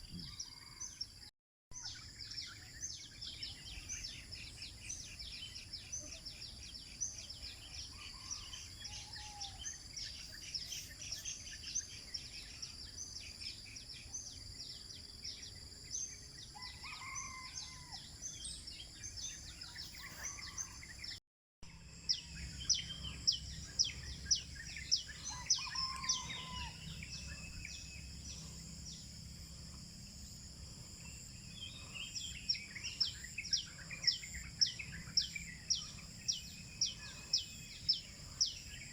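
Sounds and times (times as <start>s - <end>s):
birds chirping: 1.8s - 21.2s, 22.0s - 38.9s
lower bird calls: 22.3s - 29.1s.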